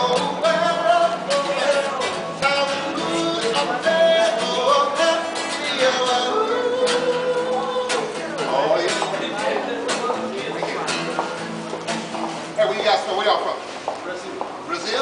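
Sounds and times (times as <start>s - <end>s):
person singing: 0.0s - 8.4s.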